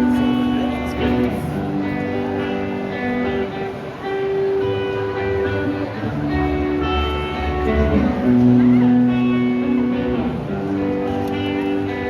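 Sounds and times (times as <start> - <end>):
rock band playing live: 0.0 - 12.0
strummed guitars: 0.0 - 12.0.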